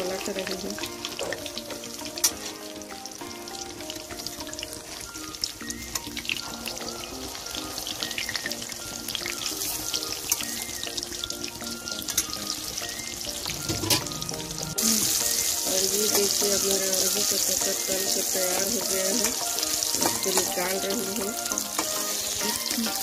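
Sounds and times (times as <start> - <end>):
background music: 0.0 - 23.0
fritters sizzling in hot oil: 0.0 - 23.0.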